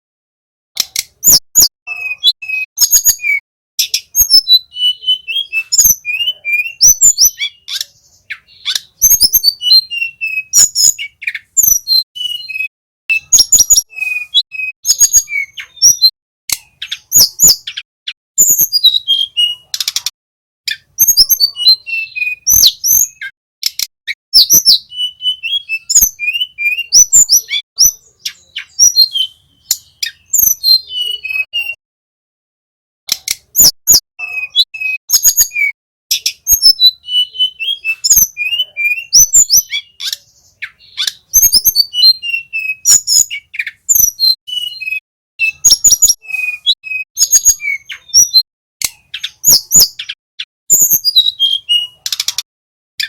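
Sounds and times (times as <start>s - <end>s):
sharp clicking bird notes: 0.8s - 1.4s, 15.6s - 17.9s, 19.7s - 20.9s, 22.5s - 23.9s, 33.1s - 34.9s, 47.9s - 50.2s, 52.0s - 52.5s
bird singing whistled notes: 1.1s - 19.9s, 20.7s - 31.8s, 33.5s - 52.3s.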